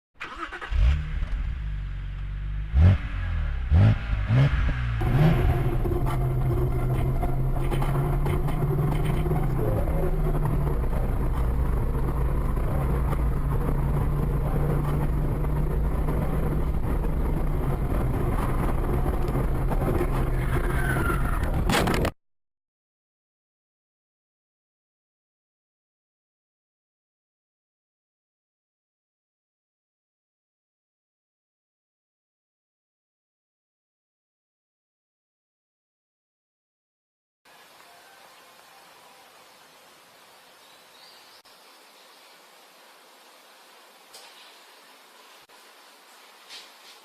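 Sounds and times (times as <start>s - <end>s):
road noise: 0.2s - 22.2s, 37.5s - 47.0s
car engine running: 0.7s - 22.1s.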